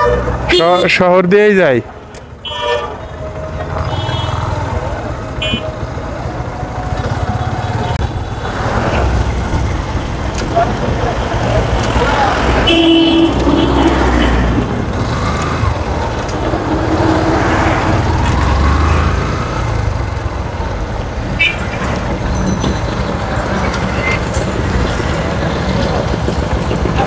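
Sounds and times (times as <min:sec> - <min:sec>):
vehicle horn: 0:00.0 - 0:01.0, 0:02.4 - 0:04.6, 0:05.4 - 0:05.8, 0:12.6 - 0:14.4, 0:21.4 - 0:21.8
other vehicles in traffic: 0:00.0 - 0:27.0
road and wind noise: 0:00.0 - 0:27.0.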